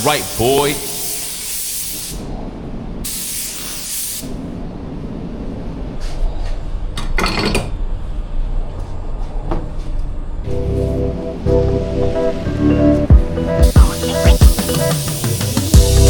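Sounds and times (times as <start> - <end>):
paint spray gun hissing: 0.0 - 2.3, 3.1 - 4.3, 13.2 - 16.0.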